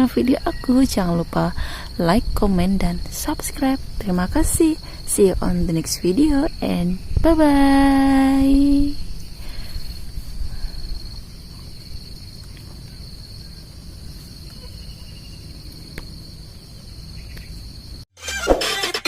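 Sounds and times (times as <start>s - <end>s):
music: 18.2s - 19.0s.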